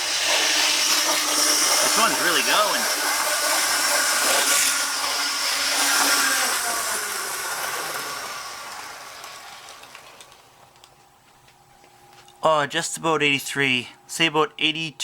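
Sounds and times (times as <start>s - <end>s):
model locomotive motor whirring: 0.0s - 10.9s
wheels running on track: 1.0s - 10.5s.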